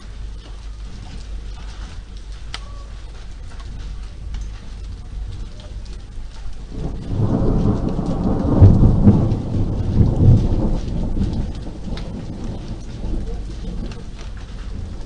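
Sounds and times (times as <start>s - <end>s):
steady rain: 0.0s - 15.0s
thunder rumbling: 0.0s - 15.0s.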